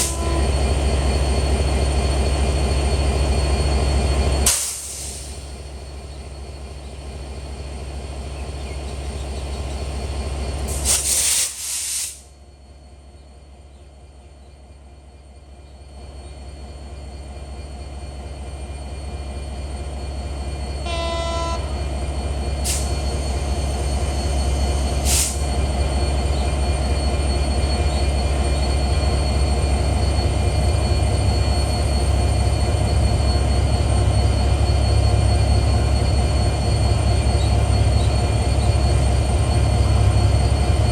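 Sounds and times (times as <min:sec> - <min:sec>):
train horn blast: 0:00.0 - 0:00.7, 0:20.8 - 0:21.8
train rumble: 0:00.0 - 0:40.9.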